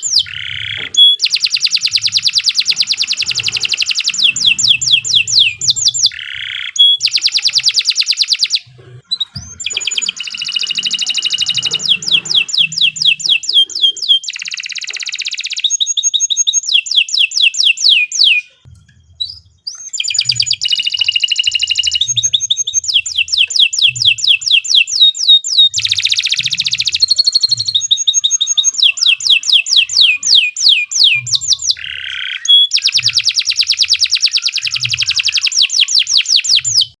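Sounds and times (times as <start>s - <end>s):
canary singing trills: 0.0s - 37.0s.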